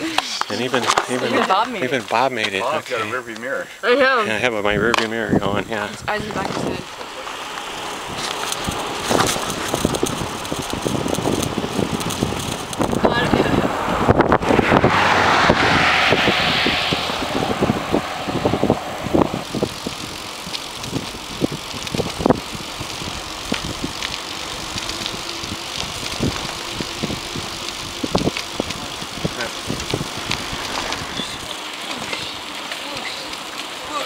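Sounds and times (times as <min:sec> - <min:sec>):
wind on microphone: 0:08.0 - 0:24.0, 0:24.8 - 0:31.4.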